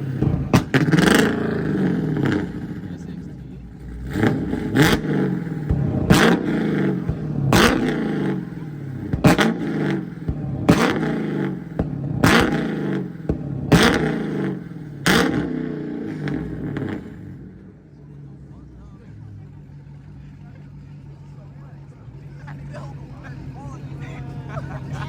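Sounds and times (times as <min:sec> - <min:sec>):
sharp exhaust crack: 0:00.0 - 0:17.7
car engine revving hard: 0:00.0 - 0:20.3.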